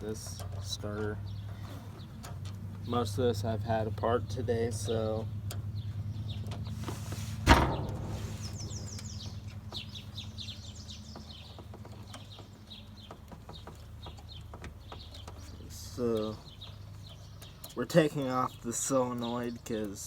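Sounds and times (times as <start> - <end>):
small birds chirping: 0.0 - 20.0
steady low hum: 1.2 - 11.4
loud knock: 7.5 - 8.8.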